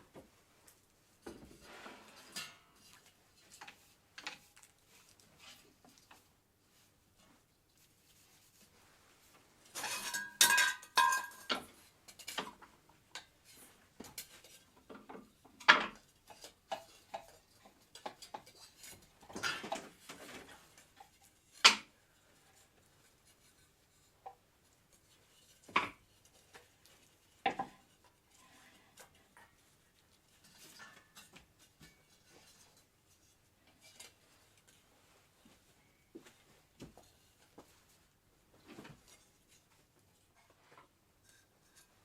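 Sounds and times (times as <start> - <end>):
hard objects clinking and clattering: 9.7 - 12.6.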